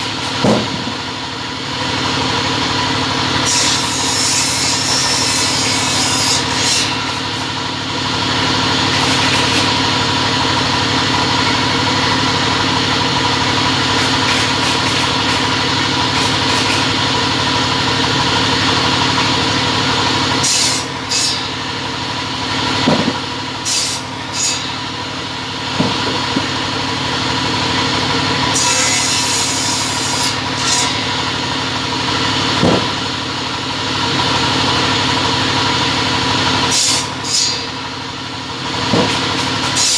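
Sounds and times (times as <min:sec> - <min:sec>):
cutting machine motor hum: 0:00.0 - 0:39.9
knocks and clatters: 0:22.8 - 0:23.2.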